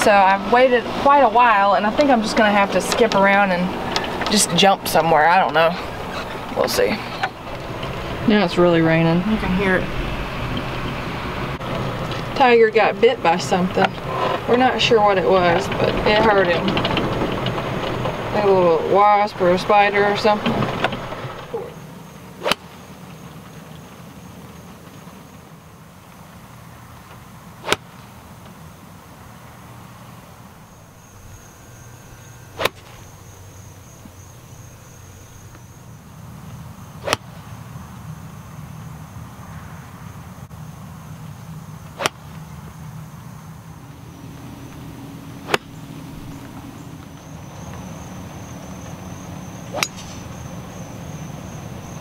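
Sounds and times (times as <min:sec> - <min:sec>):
golf clubs striking balls: 0:22.4 - 0:22.8, 0:27.6 - 0:28.0, 0:31.1 - 0:35.7, 0:37.0 - 0:37.4, 0:41.8 - 0:42.4, 0:44.3 - 0:52.0.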